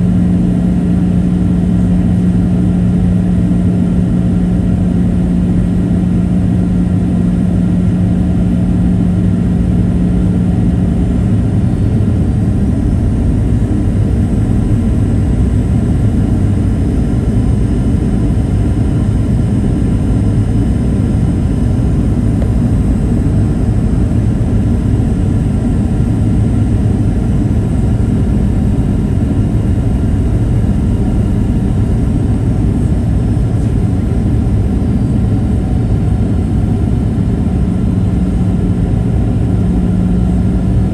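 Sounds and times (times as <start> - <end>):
airflow over fuselage: 0.0 - 40.9
jet engine cabin drone: 0.0 - 40.9
steady low hum: 0.0 - 40.9.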